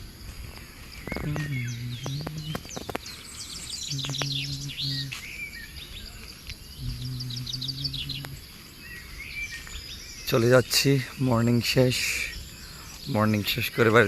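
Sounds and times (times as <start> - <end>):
low steady hum: 0.0 - 5.2, 6.7 - 9.3
birds chirping and singing: 0.0 - 14.0.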